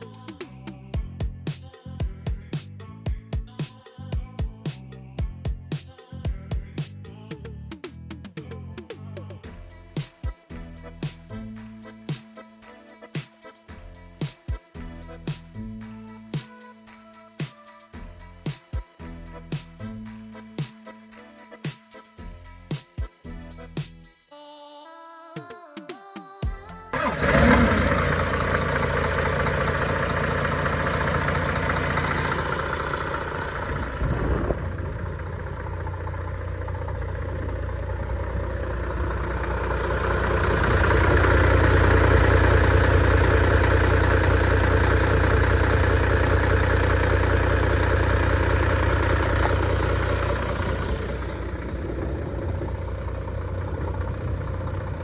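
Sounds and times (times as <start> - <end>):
diesel truck engine running: 26.9 - 55.0.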